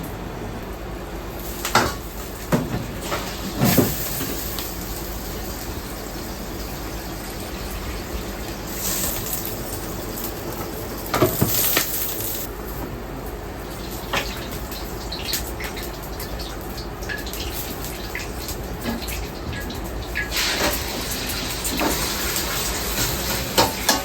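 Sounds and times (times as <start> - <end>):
water running from a tap: 13.7 - 23.9
utensils and bowls clinking: 23.0 - 24.0.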